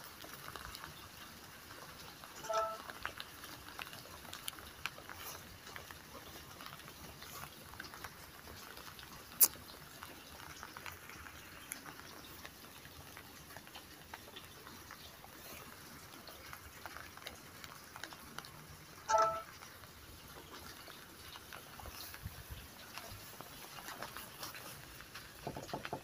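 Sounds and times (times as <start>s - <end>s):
faint rain patter: 0.0s - 26.0s
small ticks: 2.0s - 19.8s.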